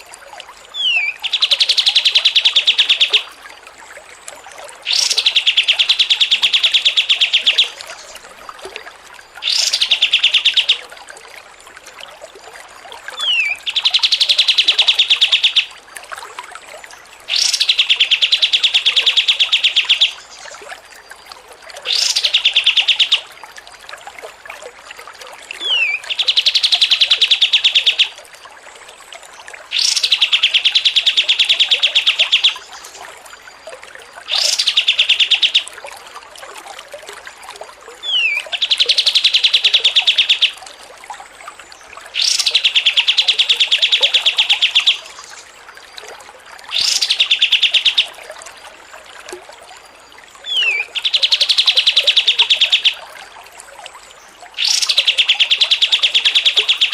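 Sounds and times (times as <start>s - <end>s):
songbird singing trilled phrase: 0.8s - 3.3s, 25.6s - 28.1s, 38.0s - 40.6s, 42.2s - 45.4s, 46.7s - 48.1s, 50.5s - 53.0s, 54.6s - 56.9s.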